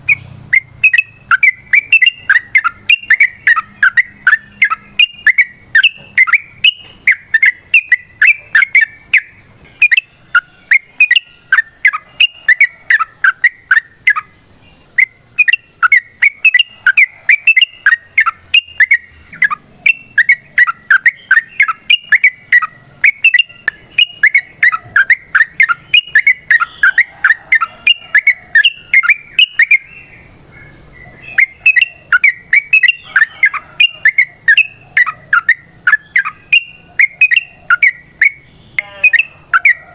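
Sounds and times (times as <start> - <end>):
bulbul singing bubbly chirps: 0.0 - 39.9.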